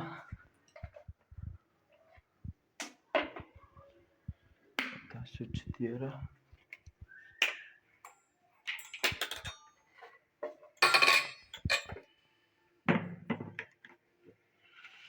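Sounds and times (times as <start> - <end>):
steel jar clinking and clattering: 10.8 - 12.0.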